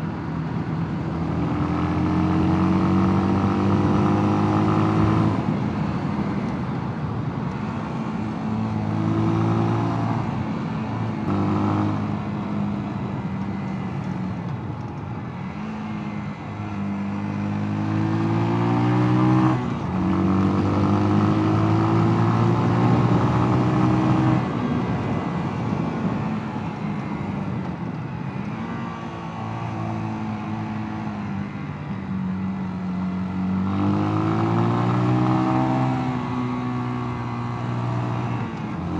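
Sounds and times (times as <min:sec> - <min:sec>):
motorcycle engine revving: 0:01.2 - 0:05.5, 0:15.5 - 0:24.6, 0:28.4 - 0:38.9.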